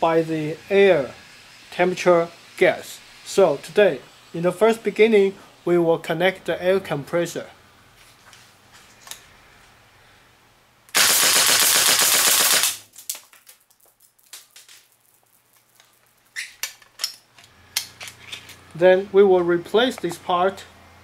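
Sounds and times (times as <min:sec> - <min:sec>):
airsoft rifle full-auto burst: 0:10.9 - 0:12.9.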